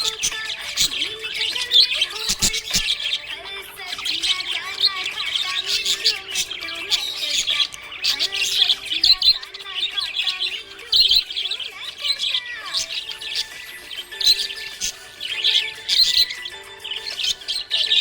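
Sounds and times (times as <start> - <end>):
budgerigars chirping: 0.0 - 18.0.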